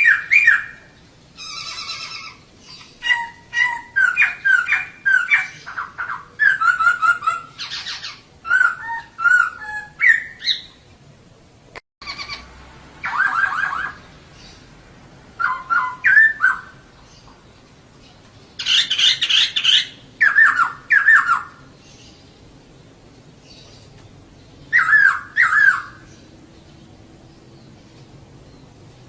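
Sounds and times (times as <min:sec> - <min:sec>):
laughingthrush chattering calls: 0:00.0 - 0:10.8, 0:12.0 - 0:14.7, 0:15.4 - 0:22.5, 0:23.5 - 0:26.4.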